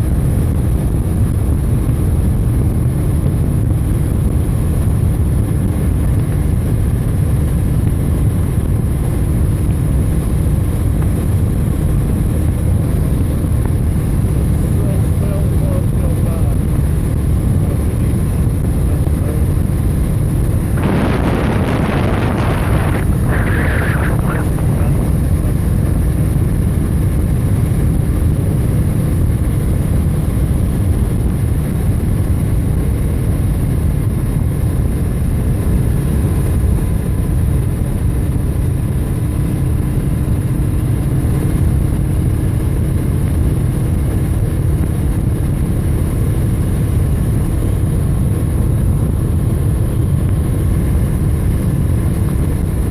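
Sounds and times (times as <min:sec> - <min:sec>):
road noise from moving bike: 0:00.0 - 0:52.9
wind buffeting microphone: 0:15.5 - 0:52.9.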